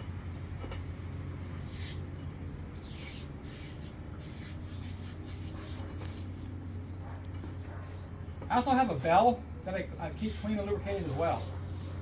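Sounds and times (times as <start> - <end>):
steady low hum: 0.0 - 12.0
aerosol can spraying: 1.6 - 2.0, 10.1 - 12.0.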